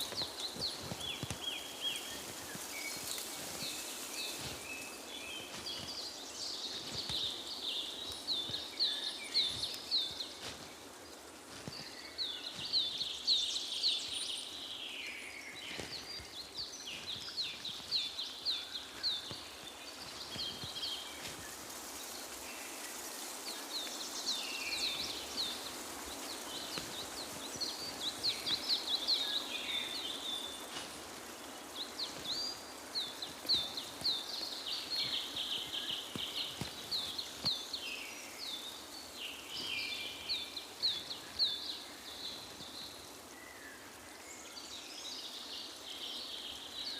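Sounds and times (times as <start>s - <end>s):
birds chirping: 0.0s - 46.9s
outdoor background hiss: 0.0s - 46.9s.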